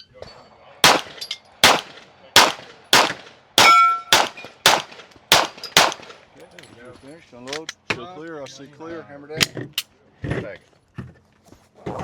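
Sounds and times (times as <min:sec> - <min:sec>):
rapid pistol shots: 0:00.8 - 0:06.2.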